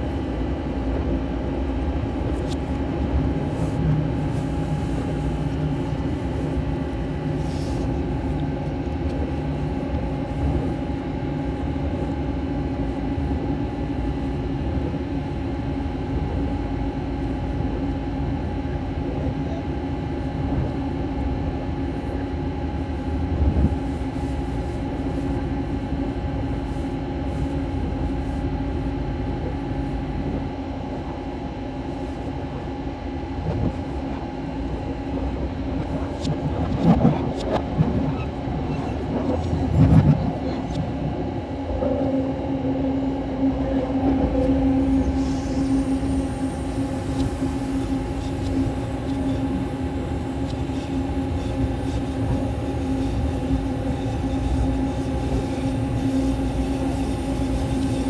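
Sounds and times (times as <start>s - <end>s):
train running on track reversed: 34.9s - 58.0s.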